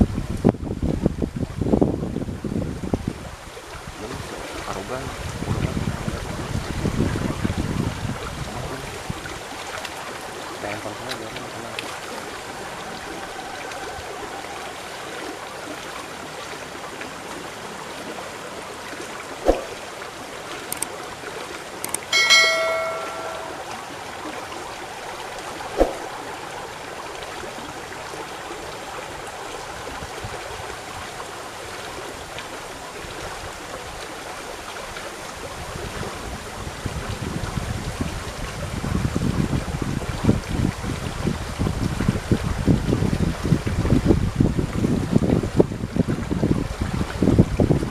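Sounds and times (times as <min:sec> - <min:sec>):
wind rumble on microphone: 0:00.0 - 0:17.4, 0:24.4 - 0:47.9
river water rushing: 0:02.9 - 0:37.4
short ringing tone: 0:22.1 - 0:24.0.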